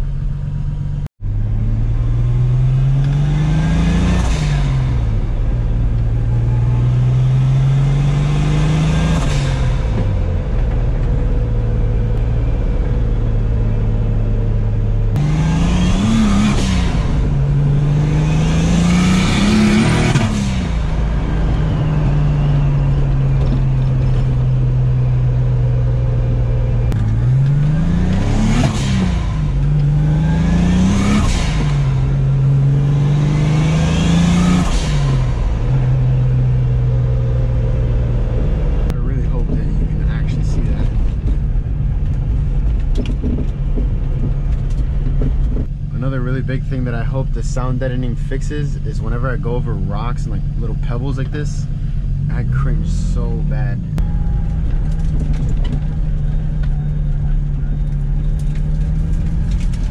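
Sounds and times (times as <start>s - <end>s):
car engine revving through gears: 0.9s - 59.9s.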